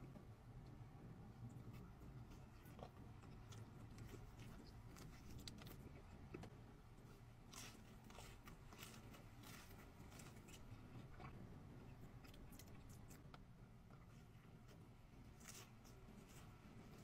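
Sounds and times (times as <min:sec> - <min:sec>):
person chewing with soft crunches: 0:00.1 - 0:17.0.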